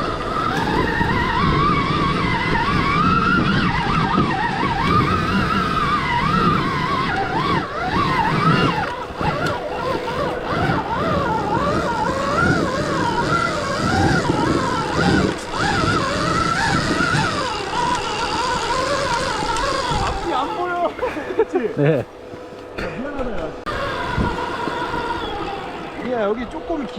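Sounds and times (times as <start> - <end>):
electric motor whining: 0.0 - 26.9
rough rumble of bike off-road: 0.0 - 26.9.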